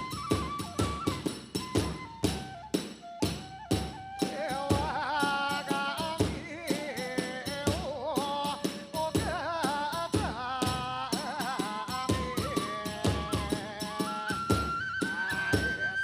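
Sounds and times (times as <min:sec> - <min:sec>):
high bamboo flute melody: 0:00.0 - 0:06.6, 0:11.3 - 0:16.0.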